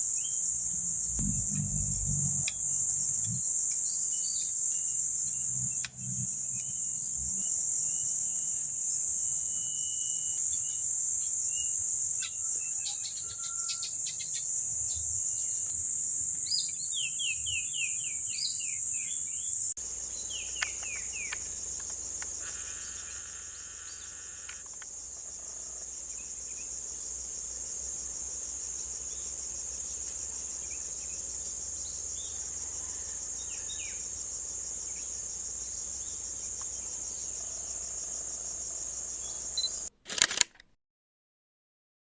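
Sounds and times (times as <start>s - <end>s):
insects droning: 0.0s - 39.9s
bird chirps: 9.6s - 15.1s.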